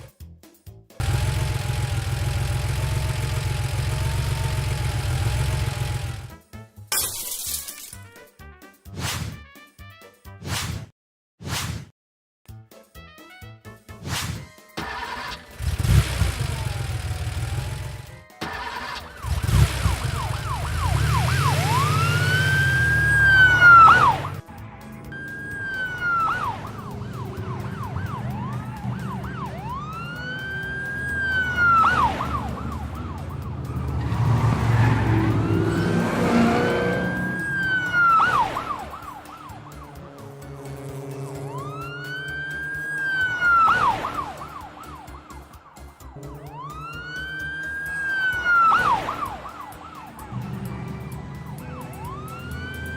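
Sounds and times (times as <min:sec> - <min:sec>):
police siren wailing: 0:16.3 - 0:24.5, 0:25.1 - 0:52.9
siren warbling yelp: 0:18.8 - 0:24.4, 0:25.2 - 0:40.2, 0:41.4 - 0:45.6, 0:46.2 - 0:52.9.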